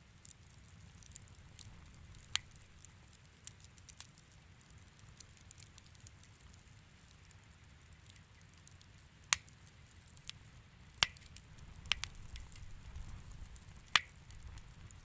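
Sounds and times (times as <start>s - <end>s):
fire ticking and popping: 0.0s - 15.0s
low fire rumble: 0.0s - 15.0s.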